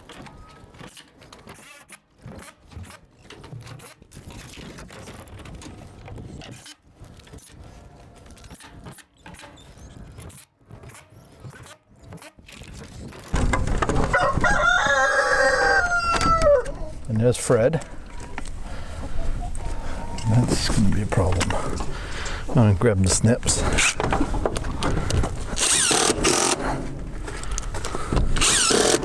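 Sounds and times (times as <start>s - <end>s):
scraping clicking and rattling: 0.0s - 14.2s
rooster crowing: 14.1s - 16.9s.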